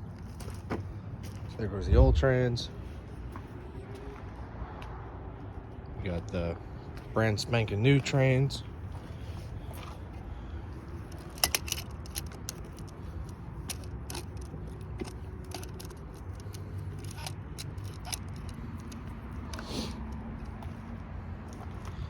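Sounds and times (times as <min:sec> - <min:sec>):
metal tools clinking: 0:11.0 - 0:20.6.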